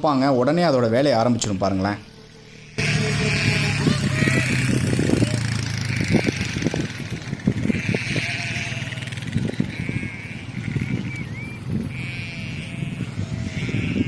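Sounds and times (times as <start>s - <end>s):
sheep bleating: 2.4s - 14.0s
wind buffeting microphone: 3.1s - 14.0s.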